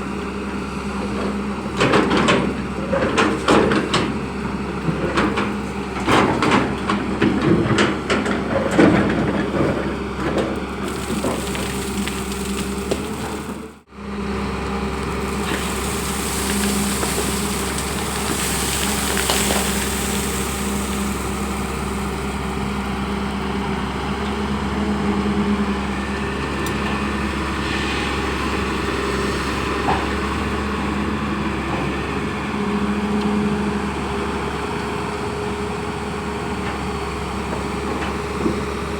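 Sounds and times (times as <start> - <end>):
excavator diesel engine running: 0.0 - 38.9
bucket knocking and soil clatter: 5.1 - 13.7, 14.9 - 23.1.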